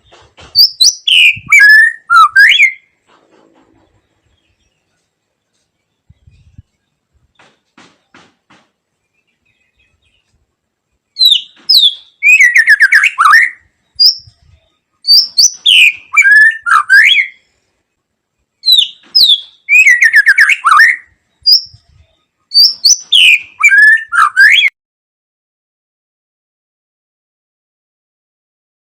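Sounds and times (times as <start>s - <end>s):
bird singing whistles and trills: 0.5s - 2.9s, 11.2s - 17.4s, 18.6s - 24.7s.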